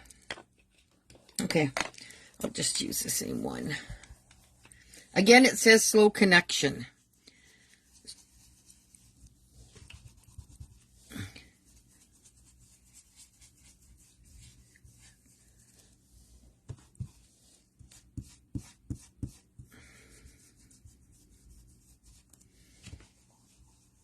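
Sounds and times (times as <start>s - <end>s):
brush scratching on paper: 5.3s - 24.0s.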